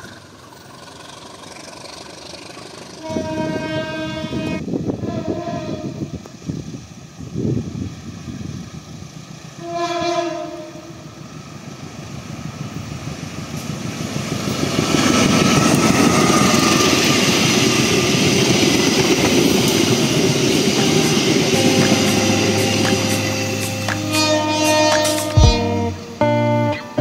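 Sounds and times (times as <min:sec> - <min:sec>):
wheels clattering on rails: 0:00.0 - 0:04.6, 0:11.8 - 0:25.4
train passing by: 0:00.0 - 0:27.0
locomotive horn blast: 0:03.0 - 0:06.1, 0:09.6 - 0:11.0, 0:20.6 - 0:27.0.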